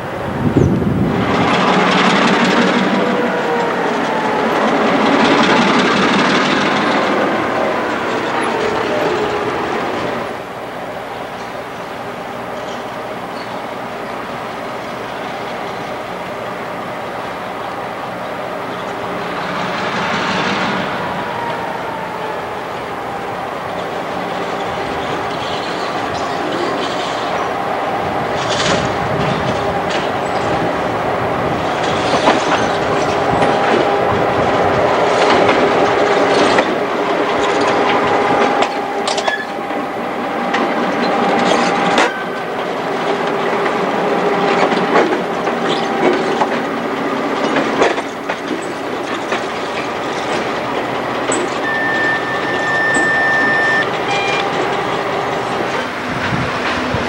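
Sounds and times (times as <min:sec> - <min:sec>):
wheels clattering over rail joints: 0:23.1 - 0:27.6, 0:28.2 - 0:39.7, 0:40.4 - 0:53.2
wheel squeal: 0:51.3 - 0:54.6.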